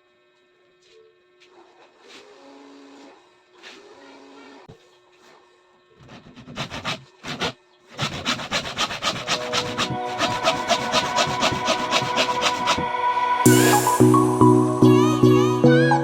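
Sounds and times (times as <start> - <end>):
rasp strokes on wood: 6.0 - 12.9.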